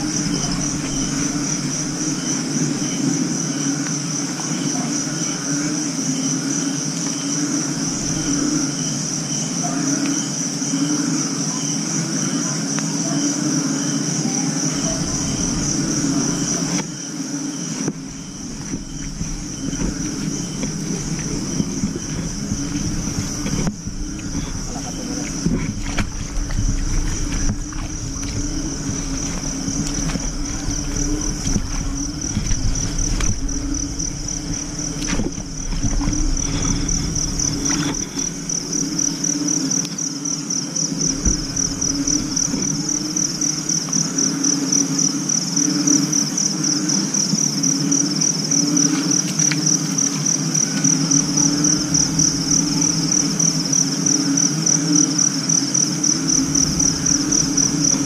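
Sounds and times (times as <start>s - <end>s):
low rumbling: 0.0s - 3.6s, 7.4s - 9.3s, 14.6s - 44.6s, 50.6s - 55.0s, 55.8s - 58.0s
crickets trilling: 0.0s - 58.0s
low wavering insect chorus: 0.0s - 58.0s.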